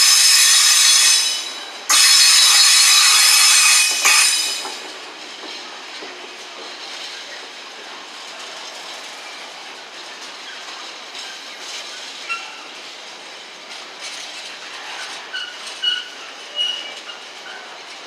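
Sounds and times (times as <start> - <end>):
high-pitched wheel squeals: 0.0 - 4.8
train wheels on rails: 0.0 - 18.0.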